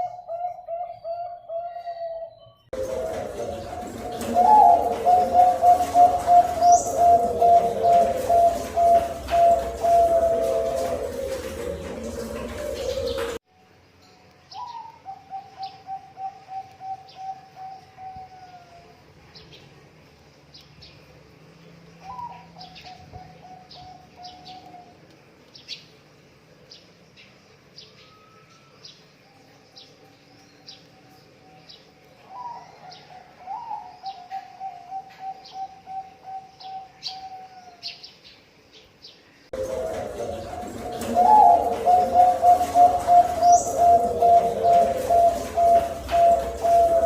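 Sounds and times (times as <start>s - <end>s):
dove cooing: 0.0s - 13.4s, 14.6s - 18.9s, 32.2s - 37.7s, 39.5s - 47.0s
small birds chirping: 0.0s - 13.4s, 14.3s - 47.0s.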